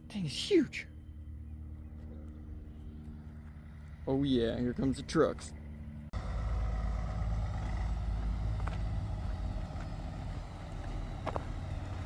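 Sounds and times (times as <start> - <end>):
truck engines running: 0.0 - 12.0.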